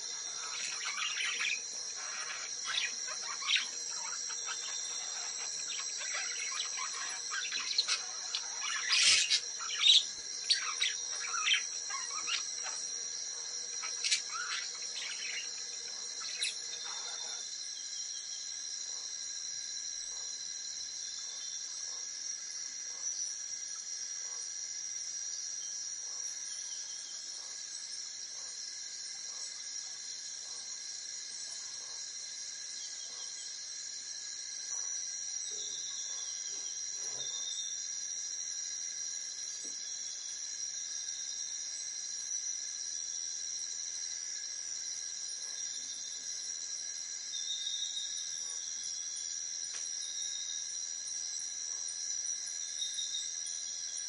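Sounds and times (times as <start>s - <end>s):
bird calls and chirps: 0.0s - 12.9s, 13.7s - 17.4s
high-pitched insect chorus: 0.0s - 54.0s.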